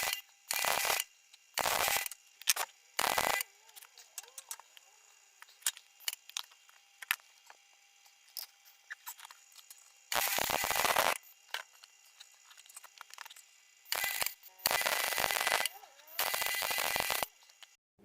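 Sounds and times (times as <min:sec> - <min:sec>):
arc welding burst: 0:00.0 - 0:03.6, 0:10.1 - 0:11.3, 0:13.8 - 0:17.4.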